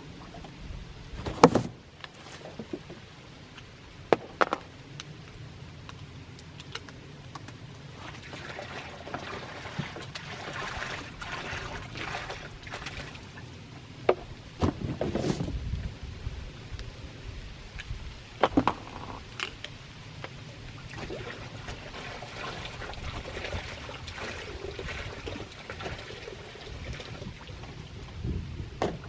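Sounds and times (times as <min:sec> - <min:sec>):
liquid pouring into a container: 0:08.0 - 0:13.4, 0:20.8 - 0:27.7.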